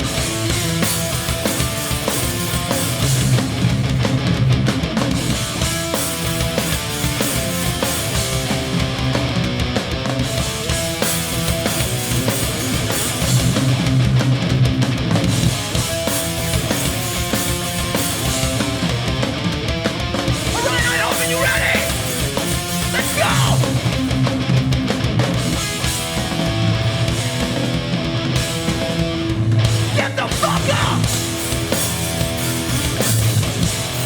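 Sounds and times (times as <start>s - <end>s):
bass guitar: 0.0s - 34.0s
distorted electric guitar: 0.0s - 34.0s
drums: 0.0s - 34.0s.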